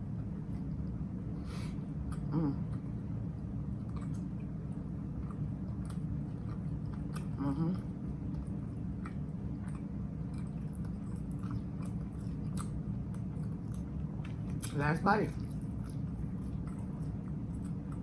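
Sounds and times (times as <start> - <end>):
low hum: 0.0 - 18.0
person chewing sandwich: 0.1 - 18.0
person humming briefly: 2.3 - 2.7.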